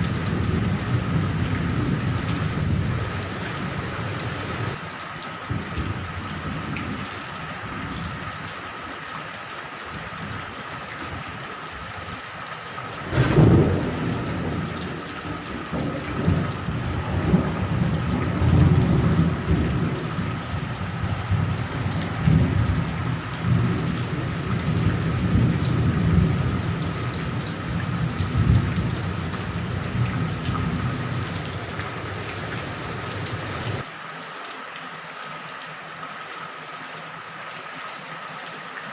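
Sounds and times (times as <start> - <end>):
low thunder rumbling: 0.0 - 4.8, 12.9 - 33.8
sharp thunderclap: 0.0 - 4.8, 12.9 - 33.8
steady rain: 0.0 - 38.9.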